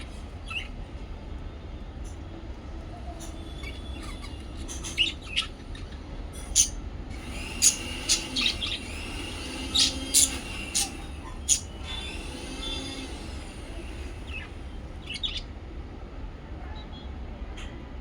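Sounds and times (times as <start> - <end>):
small parrots chirping: 0.0 - 0.8, 3.2 - 15.5
steady low hum: 0.0 - 18.0.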